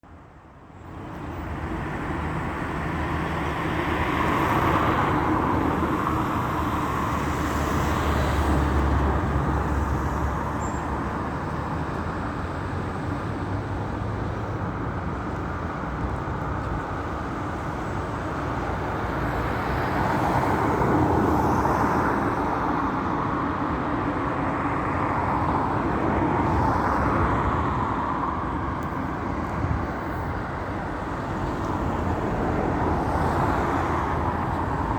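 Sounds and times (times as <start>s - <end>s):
vehicles passing: 0.8s - 34.9s.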